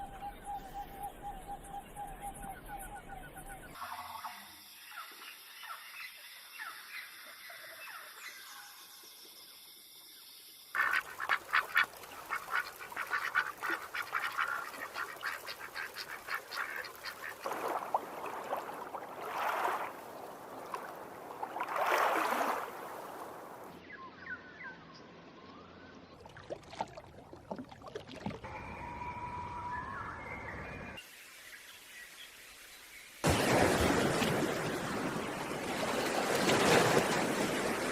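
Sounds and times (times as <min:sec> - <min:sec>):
scattered bird calls: 0:10.8 - 0:17.5
ducks quacking: 0:10.8 - 0:17.6.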